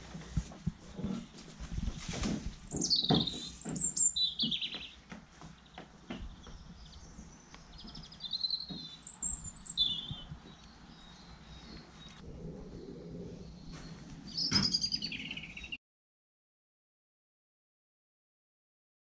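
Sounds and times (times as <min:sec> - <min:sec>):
soft knocks and scrapes: 0:00.0 - 0:09.4
birds chirping: 0:00.8 - 0:15.8
bird trill: 0:02.6 - 0:05.0, 0:06.3 - 0:12.2, 0:13.5 - 0:15.8.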